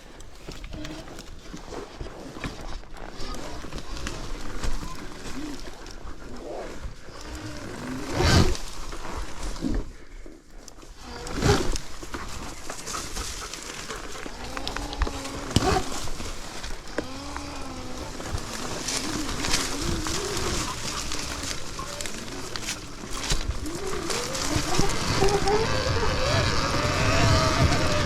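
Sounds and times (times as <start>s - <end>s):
tyres clicking and rumbling: 0.0s - 28.0s
electric motor whining: 13.8s - 28.0s.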